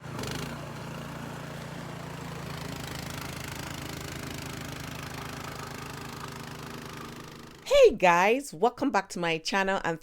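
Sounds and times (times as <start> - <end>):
snowblower engine running: 0.0 - 7.6.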